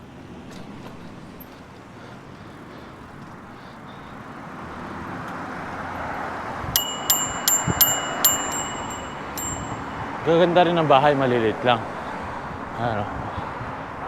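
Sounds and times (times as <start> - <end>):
bicycle bell ringing: 6.8 - 10.0.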